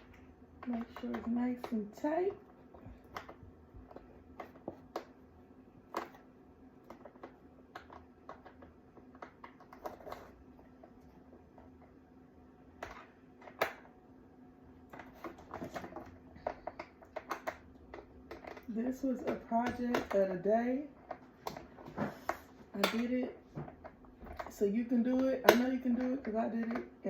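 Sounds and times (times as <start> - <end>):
plastic parts clicking: 14.9 - 20.2.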